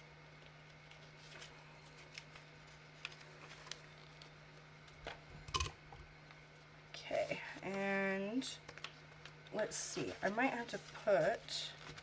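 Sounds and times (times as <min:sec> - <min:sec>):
low steady hum: 0:00.0 - 0:12.0
paper rustling: 0:00.4 - 0:05.1, 0:08.7 - 0:12.0.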